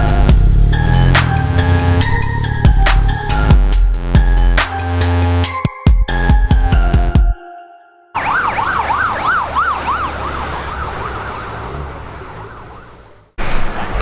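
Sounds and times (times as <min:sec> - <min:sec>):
traffic noise: 0:00.0 - 0:03.7, 0:08.2 - 0:14.0
emergency siren yelping: 0:08.1 - 0:13.2.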